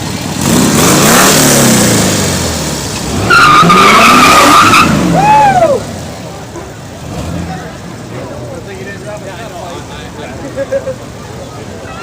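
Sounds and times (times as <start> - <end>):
car engine revving: 0.0 - 8.4
tires squealing: 0.5 - 7.8.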